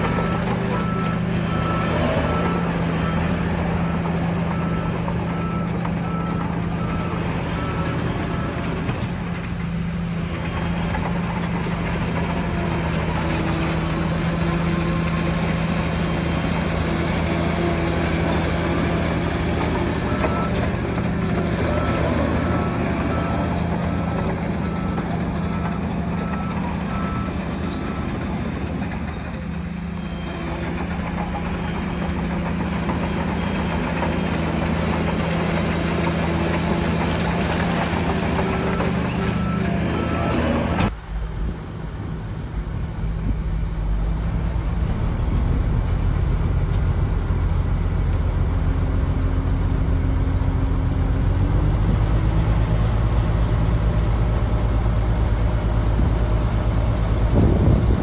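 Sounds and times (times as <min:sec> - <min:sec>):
deep engine rumble: 0:00.0 - 0:58.0
heavy machine diesel engines running: 0:00.0 - 0:58.0
reversing alarm beeping: 0:19.3 - 0:29.3, 0:37.4 - 0:40.9.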